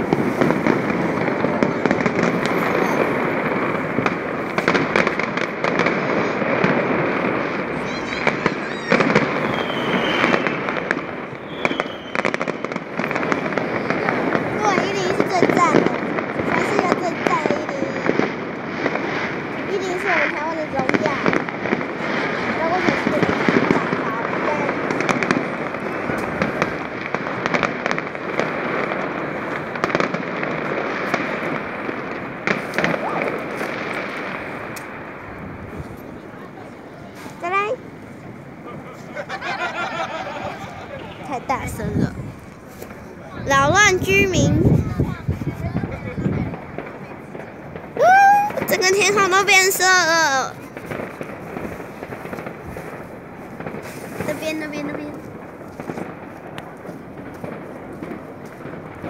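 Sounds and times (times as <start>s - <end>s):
fireworks bangs: 0.0s - 59.0s
fireworks crackling: 0.0s - 59.0s
faint high whistles: 8.7s - 10.5s, 11.4s - 12.2s.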